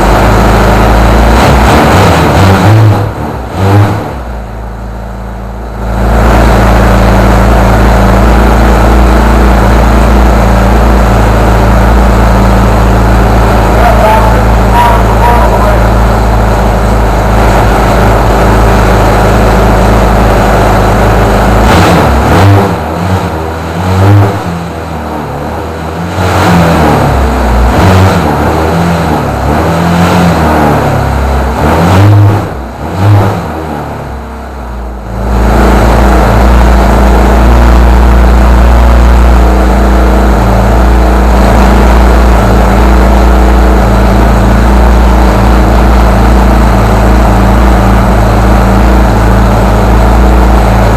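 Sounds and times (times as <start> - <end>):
model engine running loudly: 0.0 - 50.9.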